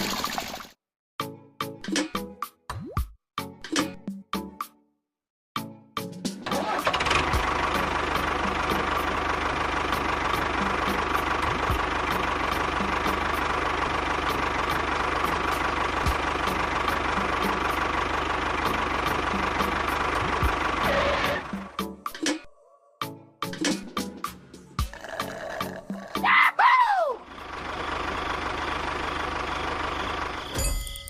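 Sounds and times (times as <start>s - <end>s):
background music with ticking beat: 1.2s - 4.8s, 5.6s - 6.5s, 7.1s - 9.3s, 9.9s - 20.9s, 21.5s - 22.4s, 23.4s - 26.4s.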